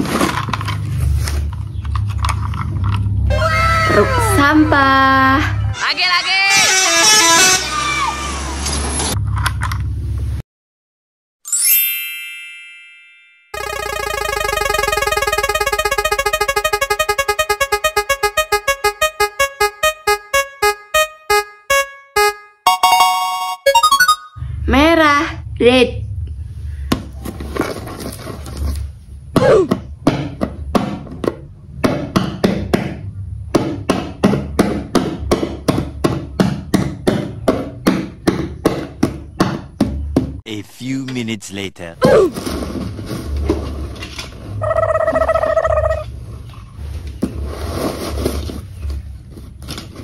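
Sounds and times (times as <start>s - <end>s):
prize wheel ticking: 13.6s - 24.4s.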